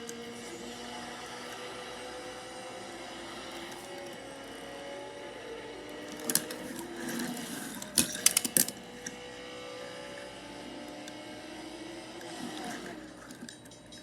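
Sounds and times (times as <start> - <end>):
small motor whirring: 0.0 - 14.0
clicks and clatters: 6.0 - 9.2, 12.2 - 14.0.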